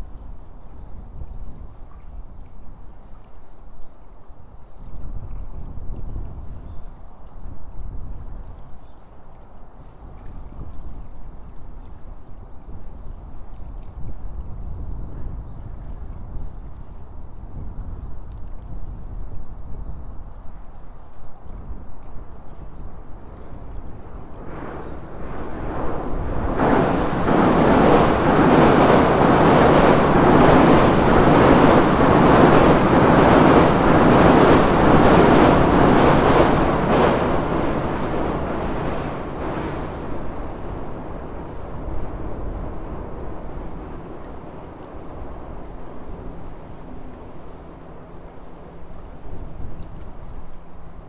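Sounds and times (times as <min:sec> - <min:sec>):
train rumbling over bridge: 0:23.8 - 0:47.0.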